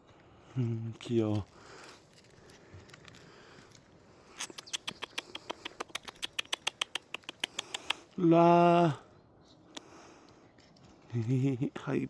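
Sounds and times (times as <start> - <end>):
puppy claws clicking on hard floor: 4.4 - 8.0.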